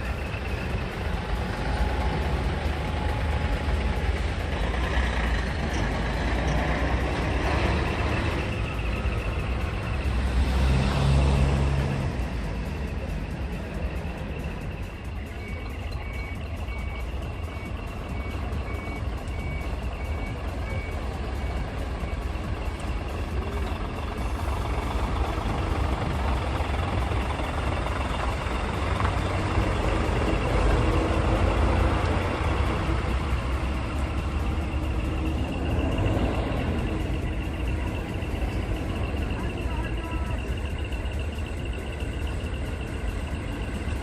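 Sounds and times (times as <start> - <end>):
truck engine rumble: 0.0 - 44.0
repeating beep: 12.8 - 26.5.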